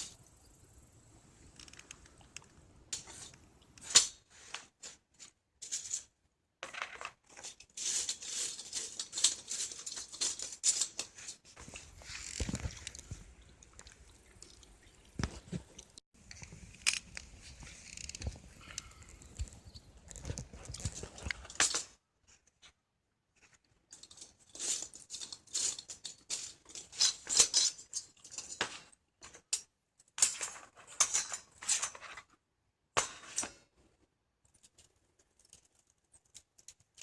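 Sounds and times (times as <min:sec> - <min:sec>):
rustling and scraping: 0:02.9 - 0:13.5, 0:15.2 - 0:29.5, 0:30.2 - 0:32.4.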